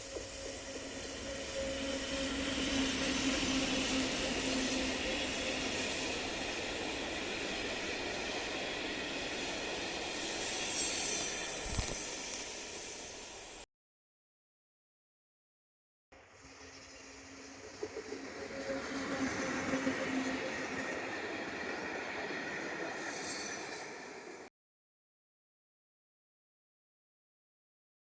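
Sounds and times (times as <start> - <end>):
train wheels rolling on rails: 0.0 - 13.6, 17.0 - 24.5.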